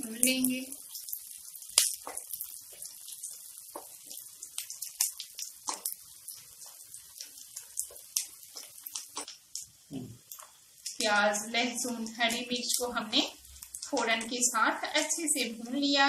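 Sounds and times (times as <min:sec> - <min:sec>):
vegetables sizzling in hot oil: 0:00.0 - 0:16.0
spatula scraping and tapping a pan: 0:05.0 - 0:09.7.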